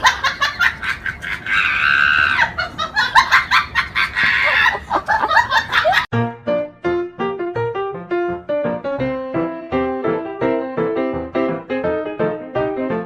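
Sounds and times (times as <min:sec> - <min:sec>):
higher animal cries: 0:01.2 - 0:02.7, 0:04.0 - 0:05.0
piano music: 0:06.1 - 0:13.0.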